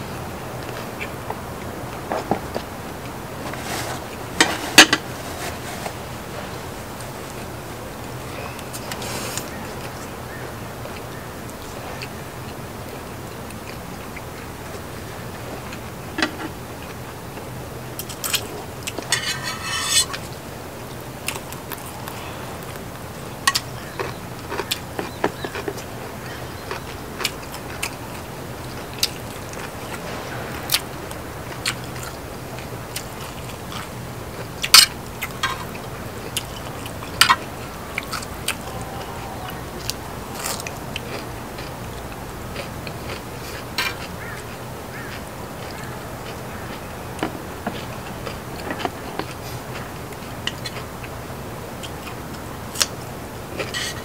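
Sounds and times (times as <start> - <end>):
person chewing and biting food: 21.2 - 25.8, 39.8 - 51.2.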